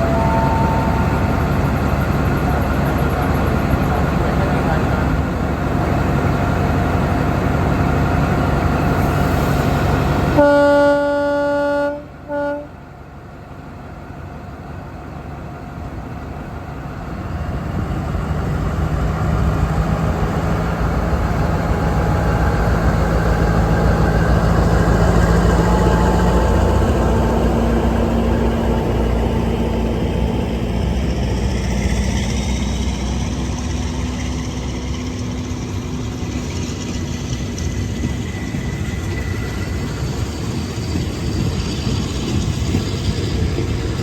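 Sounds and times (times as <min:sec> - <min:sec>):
train horn blasts: 0:00.0 - 0:01.4, 0:10.4 - 0:12.8
diesel locomotive rumble: 0:00.0 - 0:44.0.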